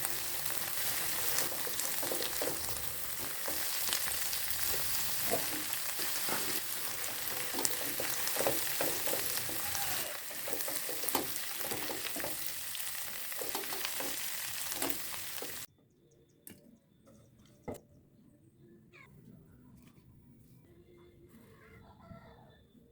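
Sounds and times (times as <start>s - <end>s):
eggplant sizzling in a pan: 0.0s - 15.7s
spatula scraping and stirring: 0.0s - 15.7s.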